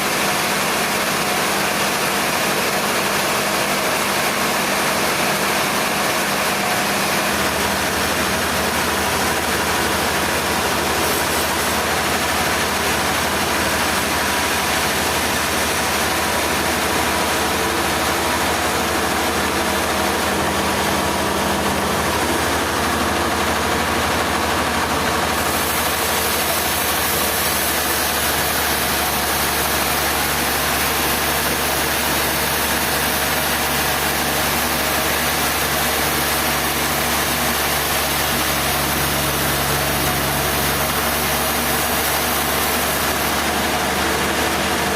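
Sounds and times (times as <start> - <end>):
sawmill machinery droning: 0.0 - 44.9.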